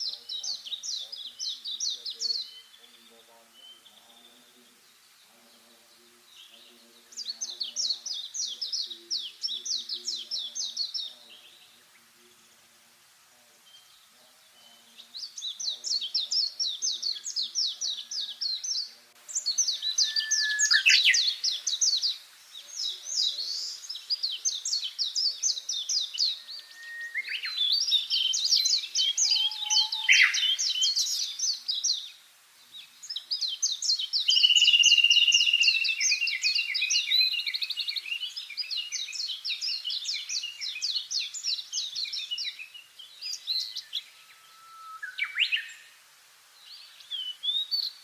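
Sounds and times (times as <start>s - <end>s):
songbird chattering: 0.0s - 12.4s, 13.6s - 32.2s, 32.8s - 44.3s.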